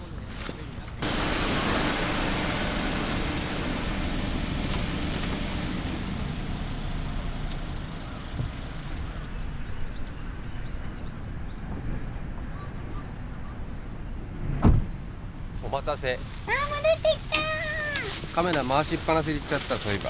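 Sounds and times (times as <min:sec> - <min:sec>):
rushing outdoor noise: 0:01.0 - 0:10.5, 0:15.7 - 0:20.0.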